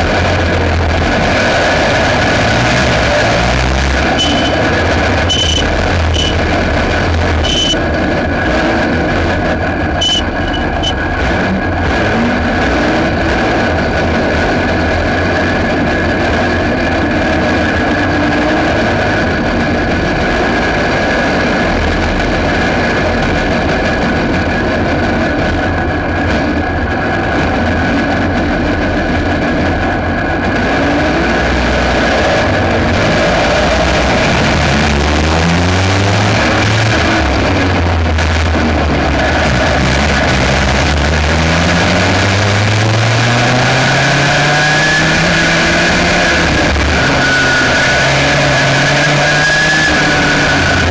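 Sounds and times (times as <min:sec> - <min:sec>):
kart engine running: 0:00.0 - 0:50.9
short high chirps: 0:04.2 - 0:04.6, 0:05.3 - 0:06.4, 0:07.4 - 0:07.8, 0:10.0 - 0:11.0.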